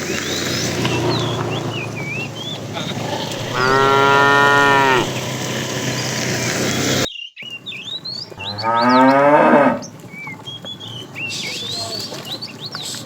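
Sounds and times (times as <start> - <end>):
cow mooing: 2.7 - 5.2, 8.4 - 9.9.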